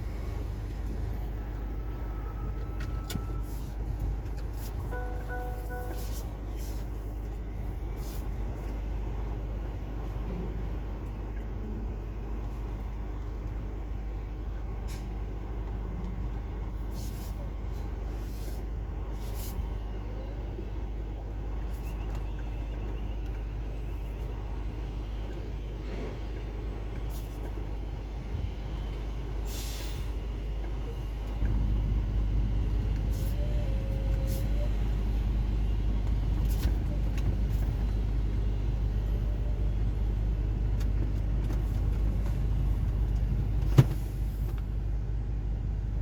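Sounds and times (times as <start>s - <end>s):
diesel truck engine rumbling: 0.0s - 46.0s
air brake hisses: 29.4s - 30.2s.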